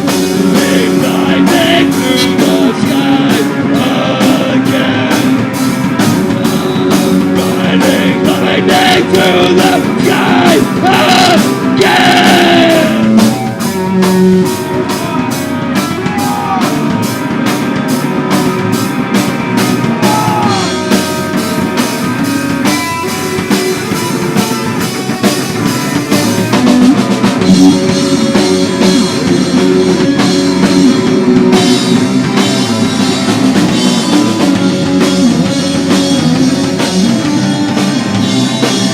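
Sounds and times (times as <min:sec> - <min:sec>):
drum kit beat: 0:00.0 - 0:38.9
live rock band playing: 0:00.0 - 0:38.9
person singing: 0:00.3 - 0:05.6, 0:06.4 - 0:13.3, 0:14.7 - 0:17.0, 0:20.0 - 0:20.9.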